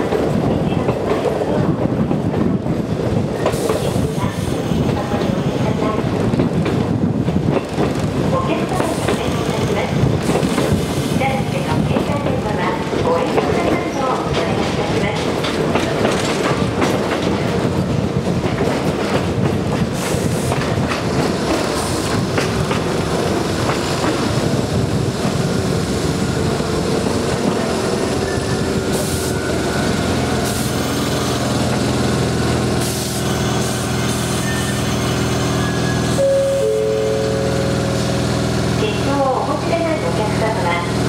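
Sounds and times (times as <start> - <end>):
train wheels clicking over rail joints: 6.1 - 34.4.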